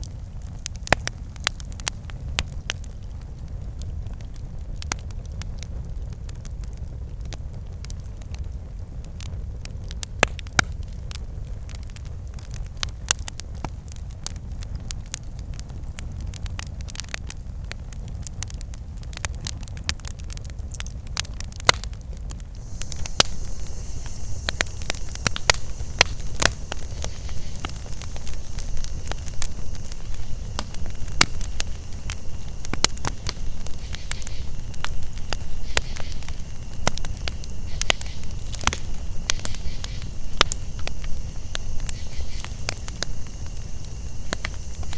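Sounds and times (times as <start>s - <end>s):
campfire crackling and popping: 0.0s - 44.9s
high insect chorus: 22.6s - 44.9s.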